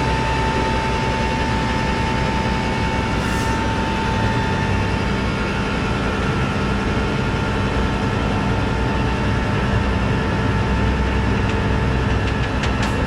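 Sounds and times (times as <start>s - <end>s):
hydraulic whine: 0.0s - 7.4s.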